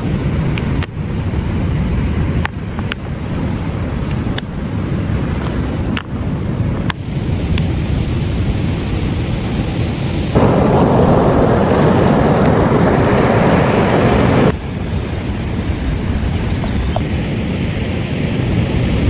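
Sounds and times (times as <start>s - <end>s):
surf: 0.0s - 19.0s
wind: 0.0s - 19.0s
loud rushing noise: 7.0s - 19.0s.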